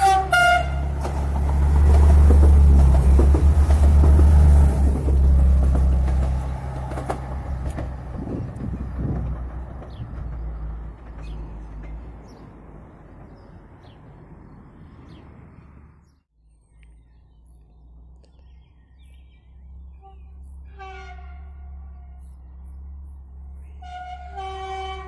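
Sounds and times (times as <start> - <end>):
distant train horn: 0.0 - 1.0, 19.9 - 22.3, 23.6 - 25.0
railcar rumble and engine hum: 0.0 - 25.0.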